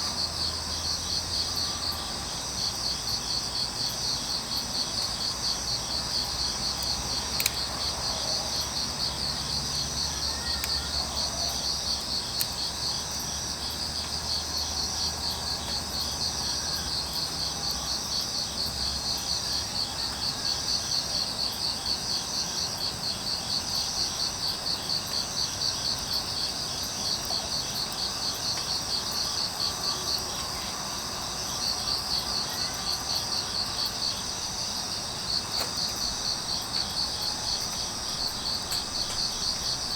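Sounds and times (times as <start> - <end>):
crickets chirping: 0.0 - 39.9
faint clicks: 6.8 - 7.7, 37.6 - 39.8.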